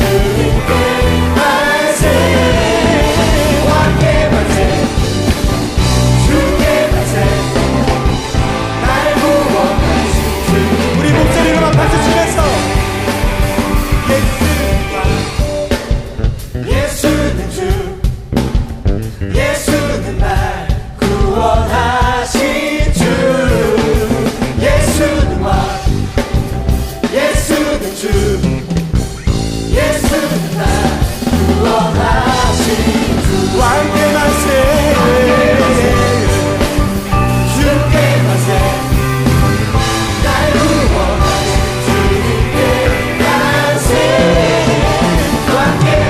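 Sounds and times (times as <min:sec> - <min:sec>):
rock band playing: 0:00.0 - 0:46.0
person singing: 0:08.8 - 0:12.9, 0:13.9 - 0:15.6, 0:30.0 - 0:36.6.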